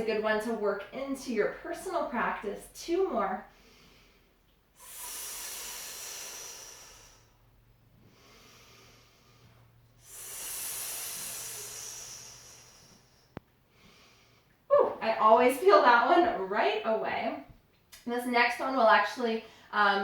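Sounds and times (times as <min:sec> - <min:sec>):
quiet inhale: 0:03.4 - 0:14.6
woman hissing exhales: 0:04.8 - 0:07.4, 0:10.0 - 0:13.2.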